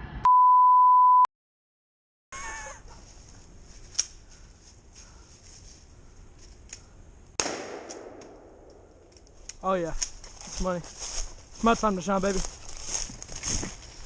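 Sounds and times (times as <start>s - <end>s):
censor bleep: 0.2s - 1.3s.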